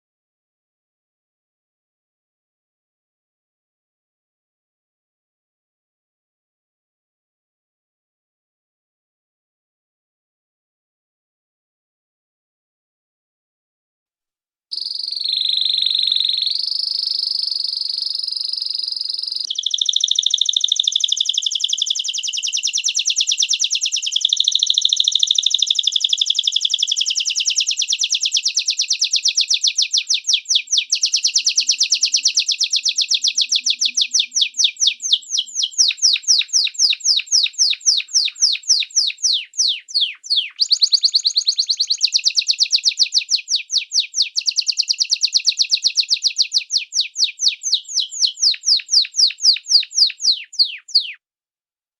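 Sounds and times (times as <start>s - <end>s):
songbird singing trills: 14.8s - 51.2s.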